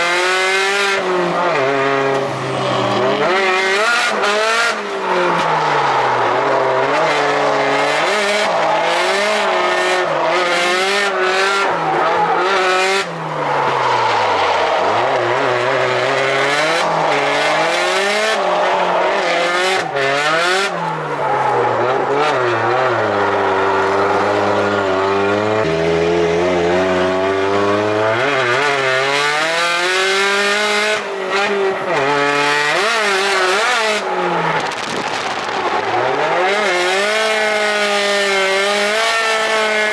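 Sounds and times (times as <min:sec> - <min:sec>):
car engine revving: 0:00.0 - 0:39.9
tyre squeal: 0:03.8 - 0:25.1.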